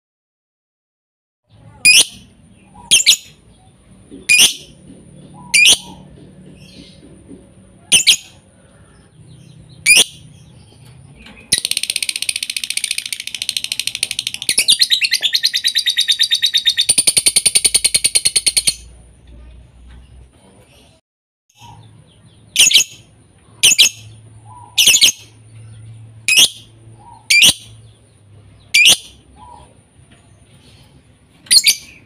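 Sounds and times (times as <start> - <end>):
lovebird chirps: 1.6 - 6.0, 7.9 - 8.4, 9.4 - 18.9, 21.6 - 29.8, 30.6 - 32.0
lovebird rapid trill: 7.9 - 8.4, 11.5 - 18.9, 22.5 - 25.4.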